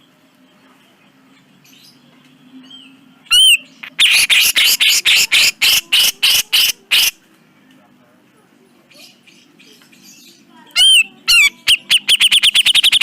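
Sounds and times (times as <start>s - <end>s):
bird rasping chatter: 3.3s - 7.2s, 10.8s - 13.0s.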